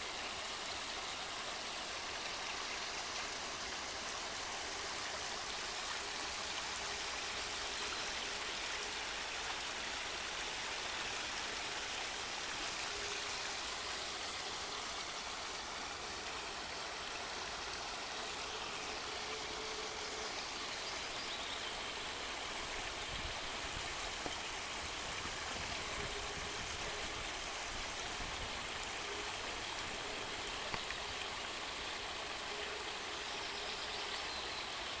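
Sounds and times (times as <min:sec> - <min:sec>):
stream babbling over stones: 0:00.0 - 0:35.0.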